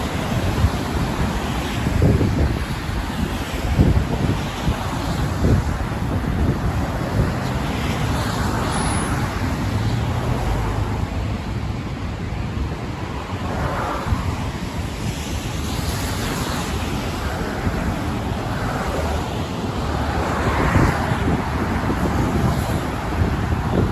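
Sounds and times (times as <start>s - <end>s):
road traffic rushing: 0.0s - 23.9s
wind buffeting microphone: 0.0s - 23.9s.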